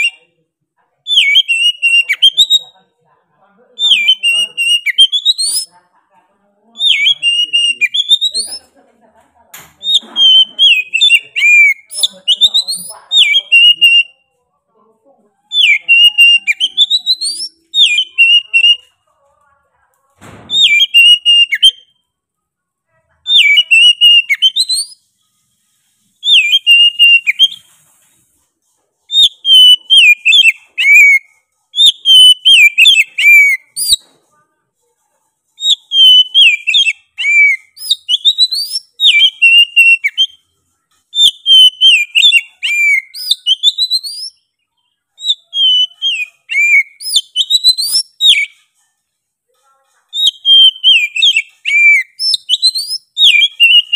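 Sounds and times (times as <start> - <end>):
bird whistling song: 0.0 - 0.3, 1.1 - 2.8, 3.8 - 5.7, 6.8 - 8.6, 9.8 - 14.2, 15.5 - 18.9, 20.5 - 22.0, 23.3 - 25.1, 26.2 - 27.7, 29.1 - 34.0, 35.6 - 40.4, 41.1 - 44.4, 45.2 - 48.6, 50.2 - 53.9.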